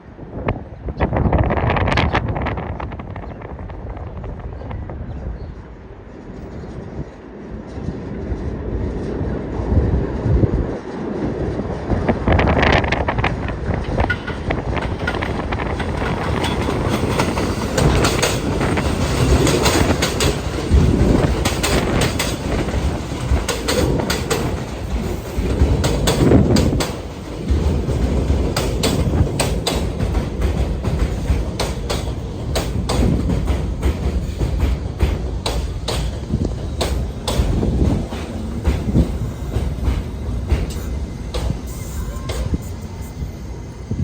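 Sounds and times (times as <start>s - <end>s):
subway train rumbling: 0.0s - 44.0s
wheels clacking over rail joints: 11.8s - 42.6s.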